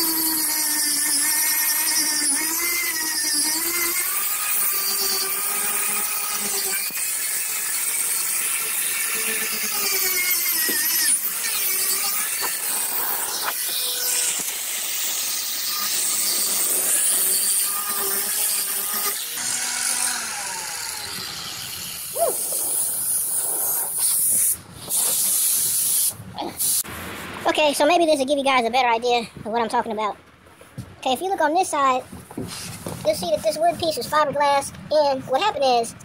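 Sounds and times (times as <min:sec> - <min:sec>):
power grinder whining: 0:00.0 - 0:24.5.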